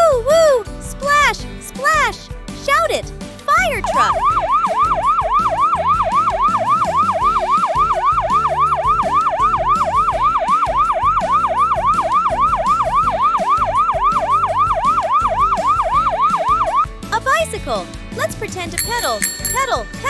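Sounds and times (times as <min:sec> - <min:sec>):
fire truck siren yelping: 0:03.9 - 0:16.9.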